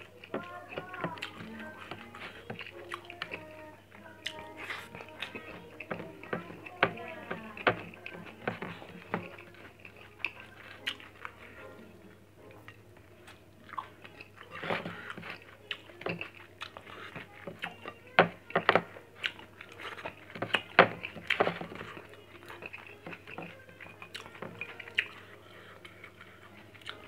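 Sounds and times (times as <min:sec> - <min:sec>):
person chewing with wet smacks: 0:00.0 - 0:11.6, 0:12.6 - 0:18.2, 0:18.8 - 0:27.0.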